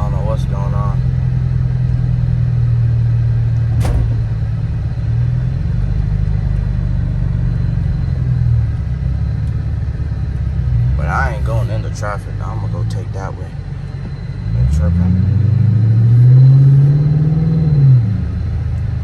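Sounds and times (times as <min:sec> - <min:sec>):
car engine droning while driving: 0:00.0 - 0:19.0
sharp click: 0:03.8 - 0:04.5.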